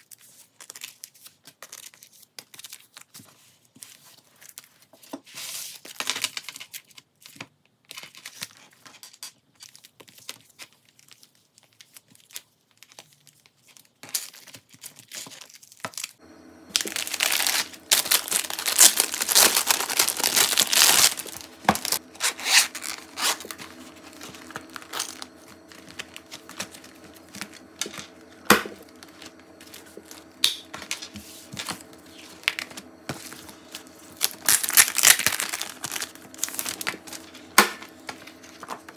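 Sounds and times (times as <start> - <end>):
plastic pages crinkling: 0.0 - 4.8, 9.6 - 38.9
faint steady hum: 16.2 - 38.9.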